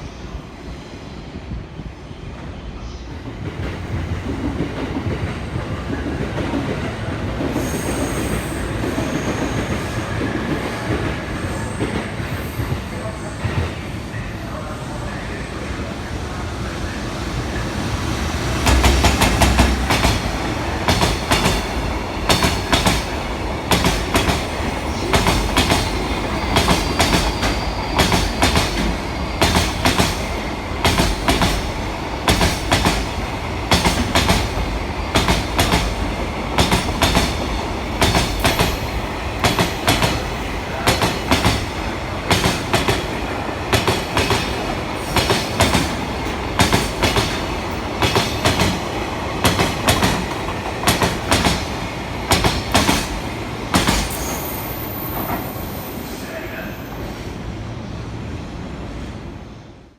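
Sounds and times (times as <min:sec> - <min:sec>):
train wheels clattering over rail joints: 0:18.6 - 0:54.4.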